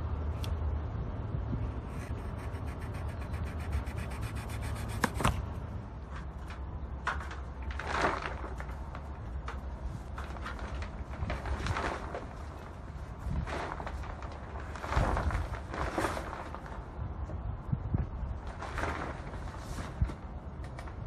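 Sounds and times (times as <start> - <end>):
plastic wrap crackling and rustling: 7.3 - 17.0, 18.3 - 21.0.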